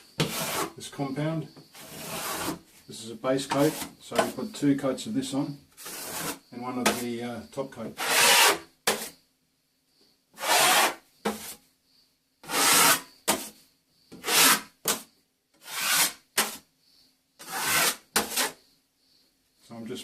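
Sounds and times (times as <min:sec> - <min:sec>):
metal scraper scraping wall: 0:00.0 - 0:00.9, 0:01.7 - 0:02.6, 0:03.5 - 0:04.6, 0:05.8 - 0:07.2, 0:07.9 - 0:09.2, 0:10.4 - 0:11.6, 0:12.4 - 0:13.5, 0:14.1 - 0:15.0, 0:15.6 - 0:16.6, 0:17.4 - 0:18.6.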